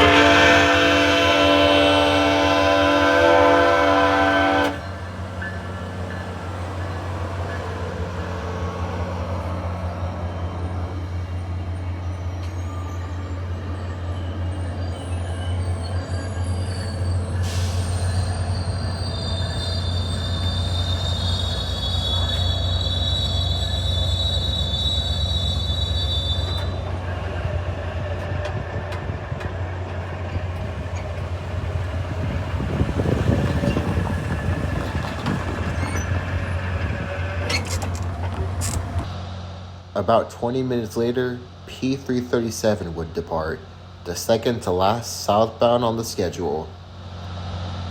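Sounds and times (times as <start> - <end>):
high wheel squeal: 0.0 - 27.4, 30.3 - 39.2
train rumbling: 0.0 - 47.9.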